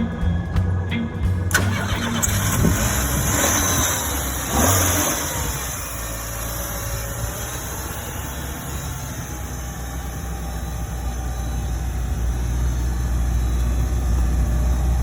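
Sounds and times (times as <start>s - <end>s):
background music: 0.0s - 4.3s
car engine starting and idling: 0.0s - 15.0s.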